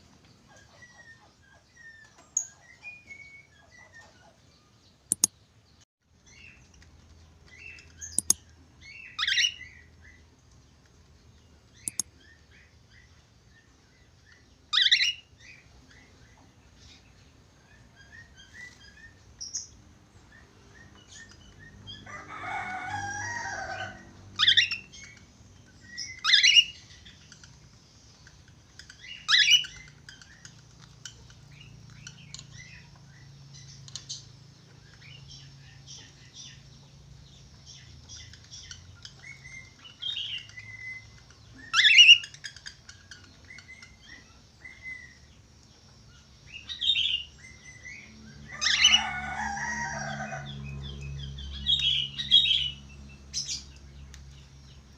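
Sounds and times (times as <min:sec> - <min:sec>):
sharp clicks: 0:05.1 - 0:05.4, 0:07.8 - 0:08.5, 0:11.8 - 0:12.1
budgerigar chirping: 0:14.7 - 0:15.3, 0:29.2 - 0:30.5, 0:41.6 - 0:42.7.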